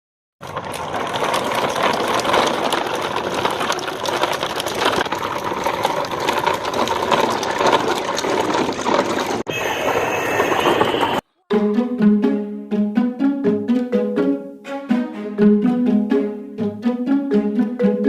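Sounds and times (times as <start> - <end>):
toy vehicle motor clattering: 0.4 - 11.2.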